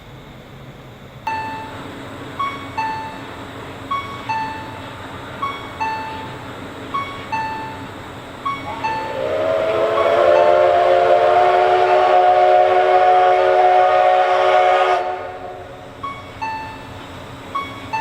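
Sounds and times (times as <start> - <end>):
faint two-note chime: 1.3 - 1.8
steam locomotive whistle: 8.5 - 15.9.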